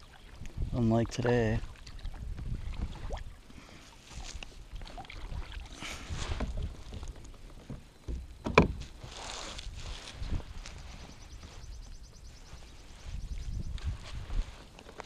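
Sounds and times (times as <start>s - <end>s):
soft water swishes: 0.0s - 7.8s.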